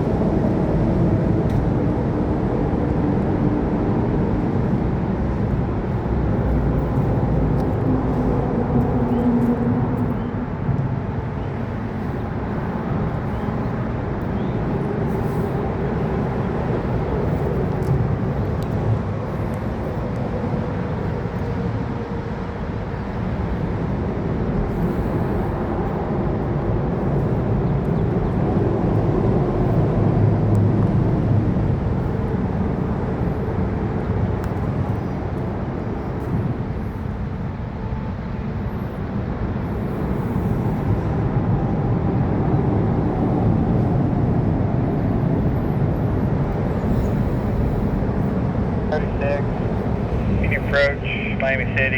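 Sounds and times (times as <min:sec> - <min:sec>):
faint steady tones: 0:48.8 - 0:51.9.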